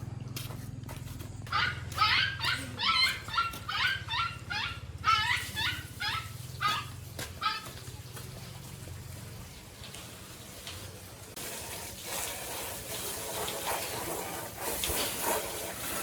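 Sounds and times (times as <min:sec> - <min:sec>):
dog yipping and barking: 0:01.5 - 0:07.8.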